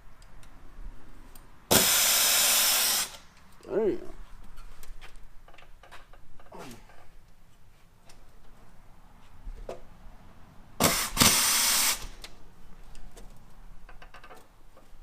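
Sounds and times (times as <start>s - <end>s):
power tool whirring: 1.7s - 3.2s, 10.8s - 12.1s.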